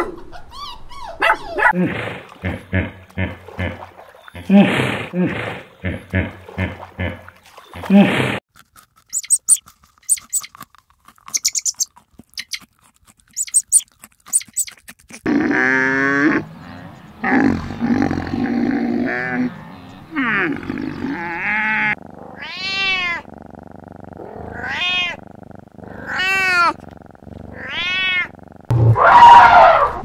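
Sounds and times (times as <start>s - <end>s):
other animal sounds: 8.8s - 29.8s
cat meowing: 21.5s - 23.3s, 24.5s - 25.2s, 26.0s - 26.8s, 27.6s - 28.3s.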